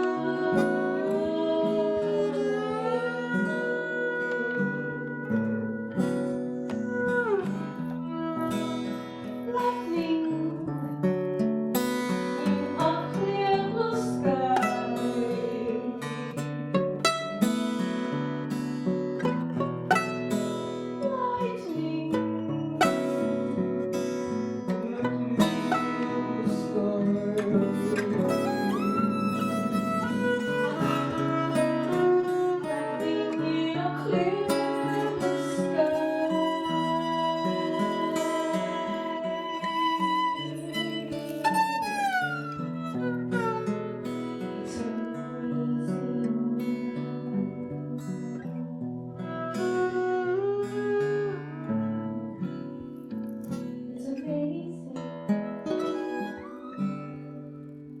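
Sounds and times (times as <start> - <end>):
person singing: 0.0 - 11.2, 11.8 - 52.9, 53.5 - 57.4
acoustic guitar: 0.0 - 58.0
bowed string melody: 12.4 - 47.6.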